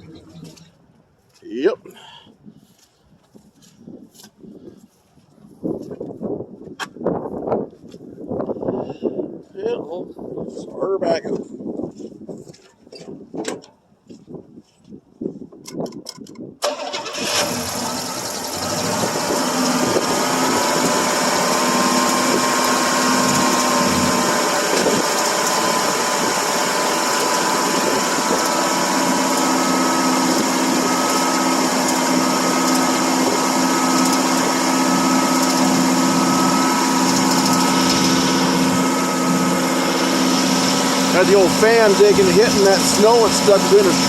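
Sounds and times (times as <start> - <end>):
whirring whine: 16.6 - 44.0
car engine running: 17.1 - 44.0.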